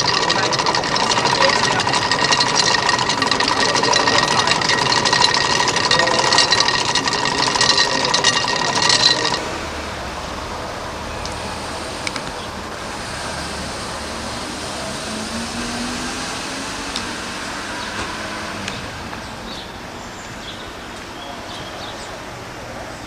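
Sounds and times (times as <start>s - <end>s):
outdoor noise: 0.0s - 23.0s
vehicle engines running: 0.0s - 23.0s.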